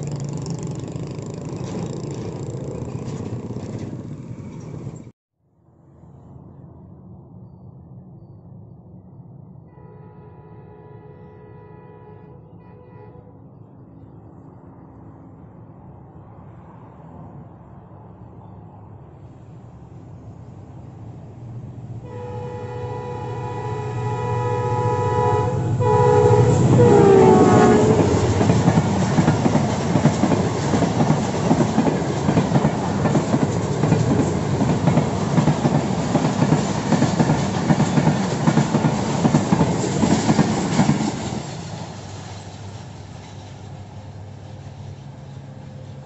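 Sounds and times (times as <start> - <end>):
train rumble: 0.0 - 5.1, 5.9 - 46.0
wheels clacking over rail joints: 0.0 - 5.1, 27.4 - 46.0
train air horn: 9.7 - 13.4, 22.0 - 28.8.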